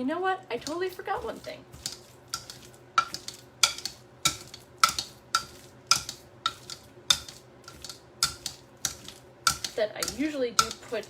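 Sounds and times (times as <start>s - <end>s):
utensil knocking against bowl: 1.7s - 10.9s.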